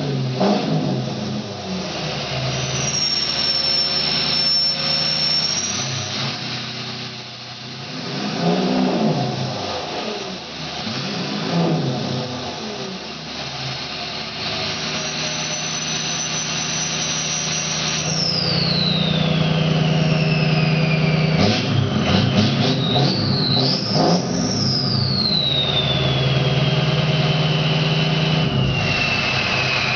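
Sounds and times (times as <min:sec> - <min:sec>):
diesel engine running: 0:00.0 - 0:29.9
turbo whistling: 0:02.4 - 0:06.2, 0:14.5 - 0:29.9.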